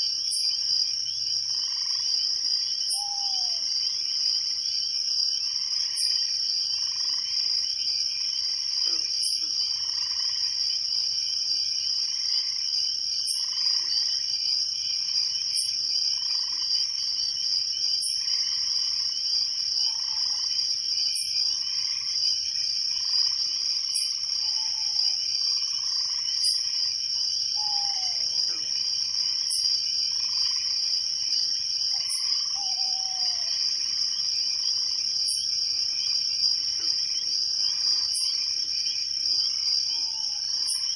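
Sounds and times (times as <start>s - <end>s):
sharp high insect chirp: 0.0s - 4.5s, 5.6s - 8.2s, 13.2s - 22.4s, 23.0s - 40.9s
crickets trilling: 0.0s - 40.9s
frogs calling: 0.0s - 40.9s.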